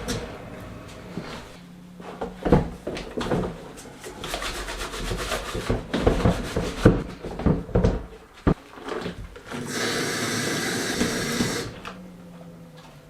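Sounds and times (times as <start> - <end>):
rubbing and scraping: 3.2 - 7.6.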